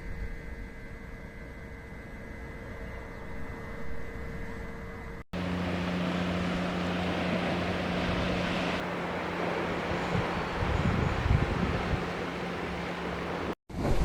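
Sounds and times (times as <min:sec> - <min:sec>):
vehicle engine drone: 0:05.4 - 0:13.6
road or wind noise: 0:05.4 - 0:14.0.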